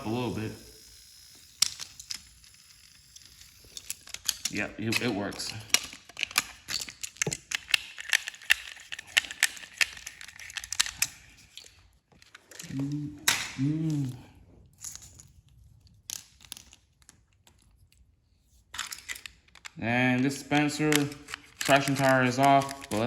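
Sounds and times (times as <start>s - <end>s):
faint motor whir: 0.0s - 4.5s
toy train clicking and rattling: 0.0s - 13.4s, 18.7s - 23.0s
person humming: 12.6s - 14.4s.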